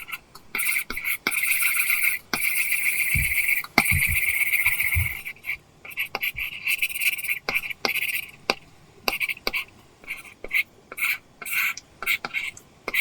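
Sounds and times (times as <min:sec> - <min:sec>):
stylus scratching on screen: 0:00.0 - 0:08.4.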